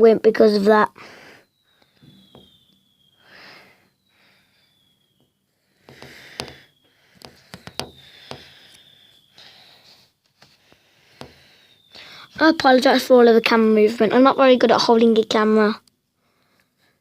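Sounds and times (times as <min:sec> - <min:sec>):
person breathing softly: 0:01.0 - 0:01.6, 0:03.2 - 0:04.8, 0:05.6 - 0:12.4, 0:16.2 - 0:17.0.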